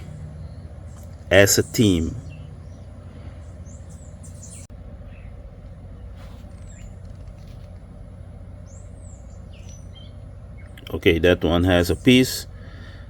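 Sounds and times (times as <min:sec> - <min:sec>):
bird chirps: 0:00.0 - 0:13.0
steady low rumble: 0:00.0 - 0:13.0.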